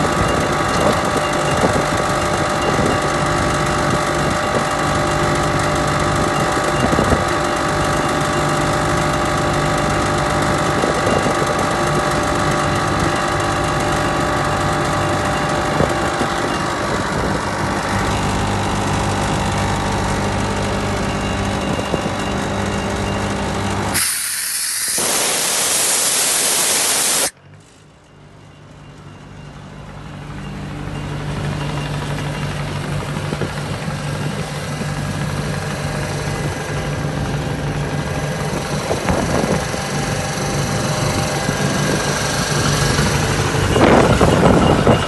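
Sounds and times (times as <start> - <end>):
engine running steadily: 0.0 - 45.0
loud hiss of air: 24.0 - 27.4.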